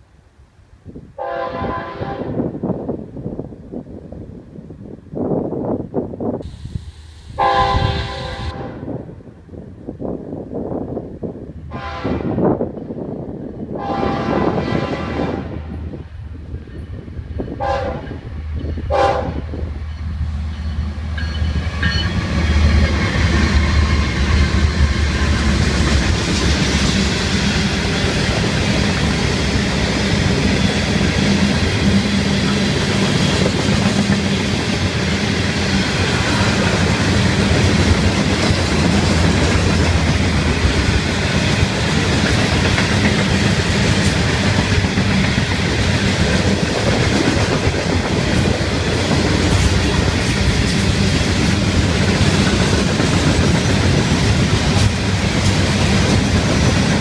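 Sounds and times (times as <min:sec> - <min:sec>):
train horn blasts: 0:01.2 - 0:02.5, 0:07.4 - 0:09.1, 0:11.7 - 0:12.5, 0:13.7 - 0:15.8, 0:17.6 - 0:18.3, 0:18.9 - 0:19.6
steel wheels on rail: 0:11.7 - 0:57.0.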